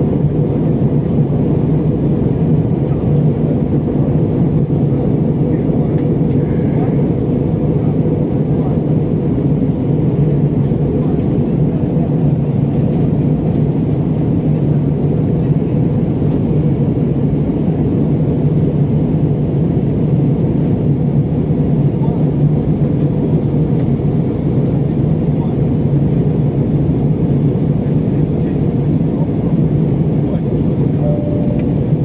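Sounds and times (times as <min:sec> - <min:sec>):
jet engines and rushing airflow: 0:00.0 - 0:32.0
low even hum: 0:29.2 - 0:32.0.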